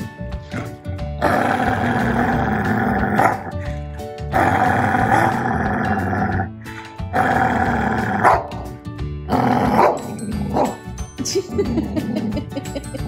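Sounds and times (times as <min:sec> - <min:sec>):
background music: 0:00.0 - 0:13.0
dog growling: 0:00.5 - 0:08.5, 0:09.3 - 0:10.8.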